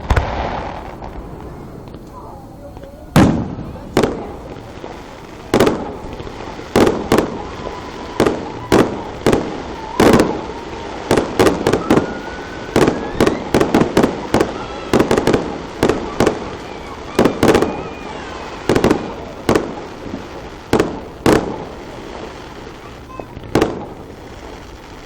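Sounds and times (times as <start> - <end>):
fireworks bursting: 0.0 - 25.0
faint rising whistle: 11.6 - 13.6.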